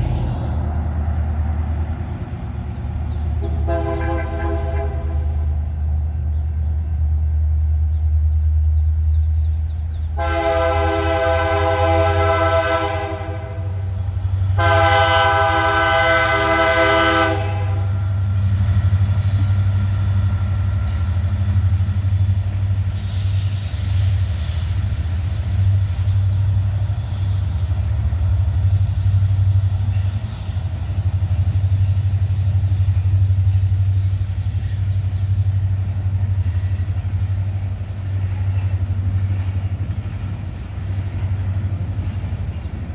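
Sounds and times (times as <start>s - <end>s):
freight train rumbling past: 0.0s - 42.9s
train air horn blasts: 3.4s - 5.6s, 10.1s - 18.4s.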